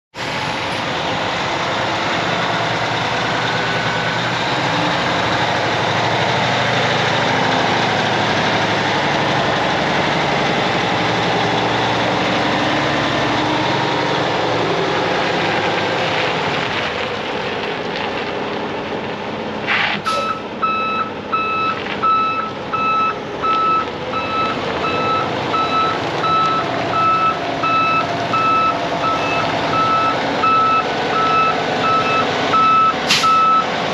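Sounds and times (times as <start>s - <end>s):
diesel truck rumbling: 0.1s - 33.9s
backup alarm beeping: 20.2s - 33.7s.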